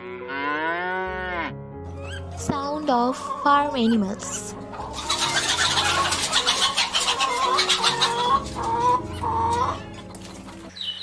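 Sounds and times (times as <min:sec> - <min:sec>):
hens clucking and cackling: 0:03.1 - 0:11.0.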